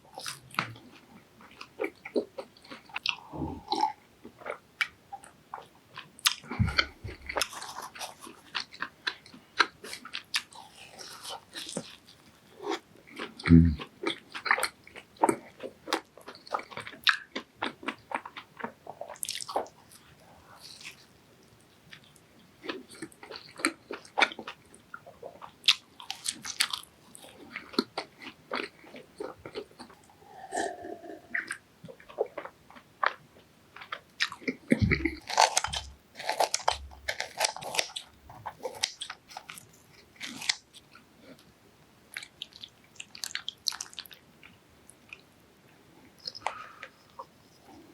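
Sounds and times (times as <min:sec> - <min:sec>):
person chewing crunchy food: 0:00.0 - 0:41.5, 0:42.1 - 0:45.3, 0:46.0 - 0:47.9.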